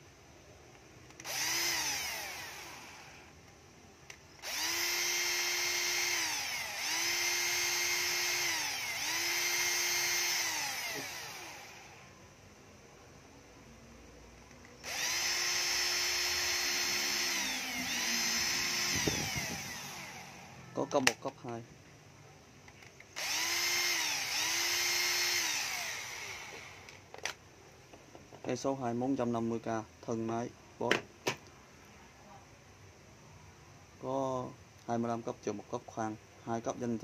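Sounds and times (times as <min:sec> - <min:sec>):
cordless drill motor whining: 0:01.1 - 0:03.4, 0:04.4 - 0:12.1, 0:14.8 - 0:21.2, 0:23.2 - 0:27.0.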